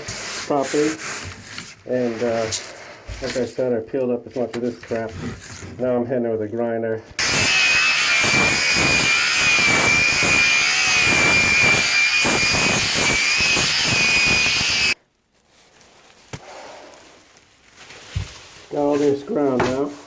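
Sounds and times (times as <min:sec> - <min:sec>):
grinder high whine: 0:07.2 - 0:15.0.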